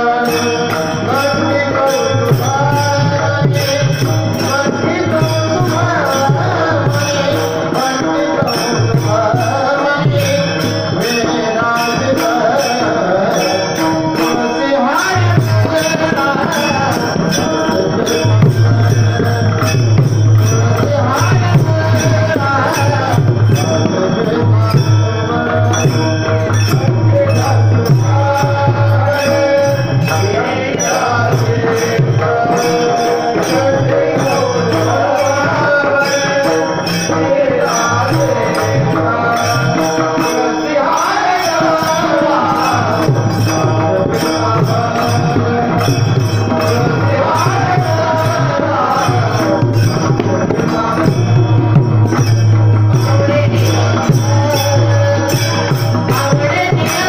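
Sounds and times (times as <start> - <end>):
jingling percussion: 0.0 - 57.0
person singing: 0.0 - 57.0
hand drum beat: 13.9 - 57.0.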